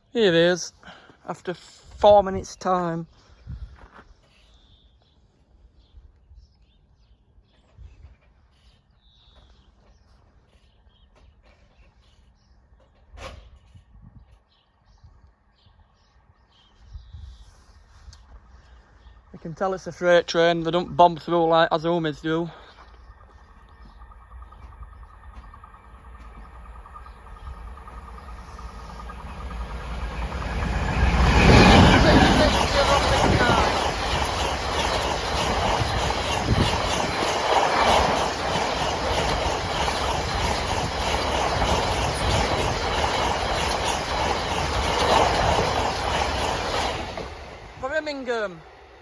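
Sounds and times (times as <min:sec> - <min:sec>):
birds chirping: 0:18.5 - 0:49.0
freight train rumbling: 0:19.2 - 0:49.0.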